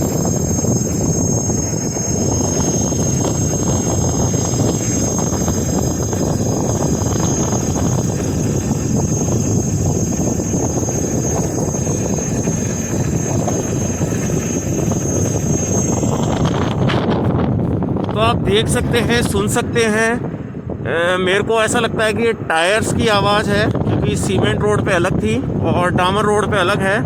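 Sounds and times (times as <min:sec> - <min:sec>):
high-pitched motor whine: 0:00.0 - 0:19.5.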